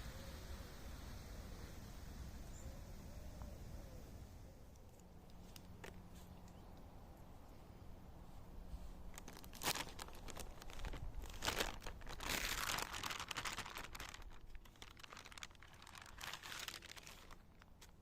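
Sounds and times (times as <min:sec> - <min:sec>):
crinkly packaging rustling: 0:08.8 - 0:18.0.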